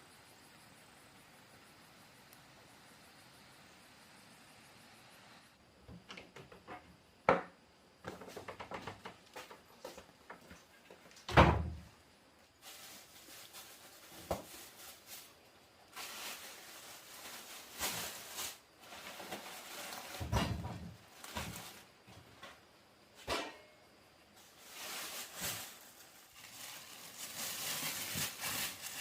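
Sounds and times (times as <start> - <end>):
rustling or scraping: 12.6 - 22.5, 24.4 - 29.0.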